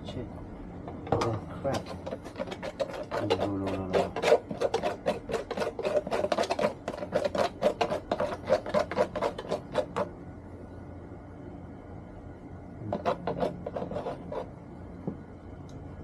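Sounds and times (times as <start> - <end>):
filing or sanding by hand: 1.7 - 10.1, 12.9 - 14.5.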